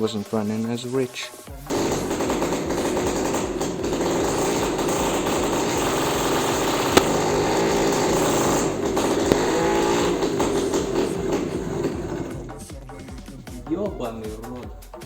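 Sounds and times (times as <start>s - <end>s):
tractor engine running: 1.7s - 13.6s.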